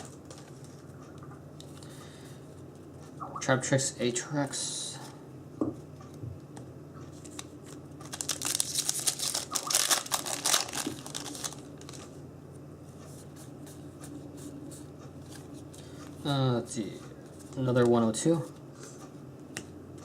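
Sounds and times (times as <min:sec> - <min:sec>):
foil pack crinkling: 0:07.4 - 0:12.1.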